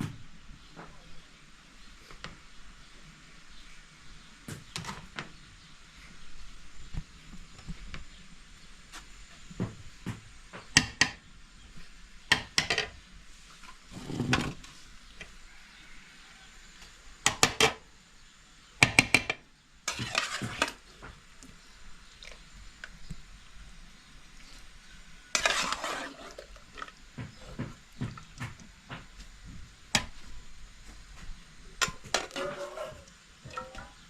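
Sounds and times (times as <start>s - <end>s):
utensil scraping: 19.9s - 20.9s, 25.4s - 27.7s, 31.9s - 33.1s.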